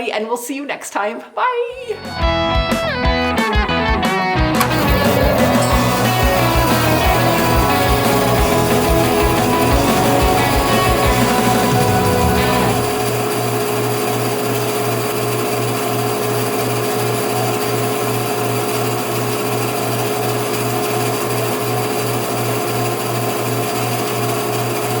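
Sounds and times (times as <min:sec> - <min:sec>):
steady high tone: 0:04.6 - 0:13.6
small machine humming: 0:04.6 - 0:25.0.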